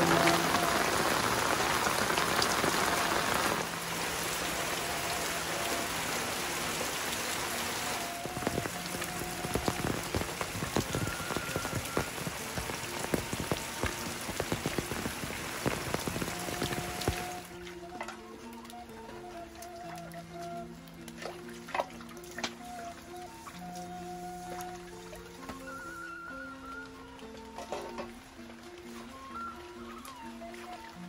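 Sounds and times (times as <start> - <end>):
heavy drops splashing and dripping: 0.0 - 17.8
steady rain falling: 0.0 - 31.0.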